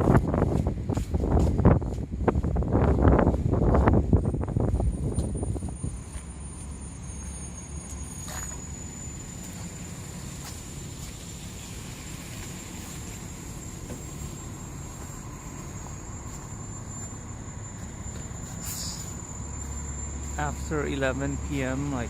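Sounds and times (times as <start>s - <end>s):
high steady whine: 0.0s - 22.0s
street traffic rumble: 0.0s - 22.0s.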